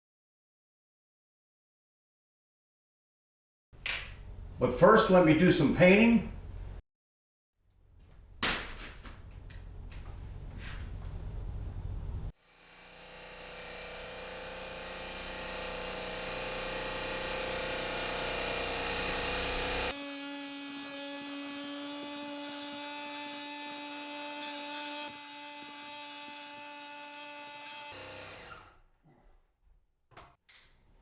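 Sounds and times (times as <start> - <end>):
paint sprayer hissing: 3.8 - 4.7, 8.2 - 12.3.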